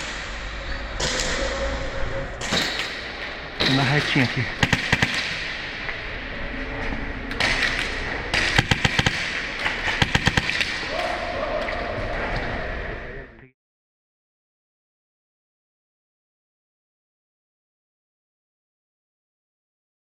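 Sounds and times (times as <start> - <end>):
steady tone: 0.0 - 8.3
airsoft guns firing: 2.4 - 6.2, 7.3 - 11.2.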